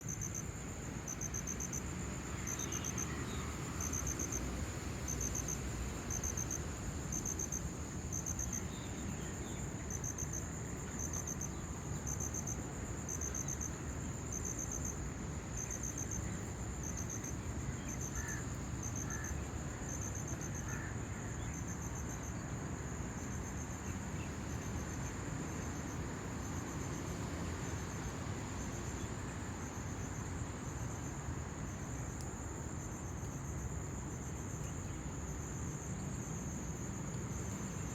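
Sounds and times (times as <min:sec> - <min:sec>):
high continuous insect trill: 0:00.0 - 0:37.9
pulsed cricket chirps: 0:00.0 - 0:37.9.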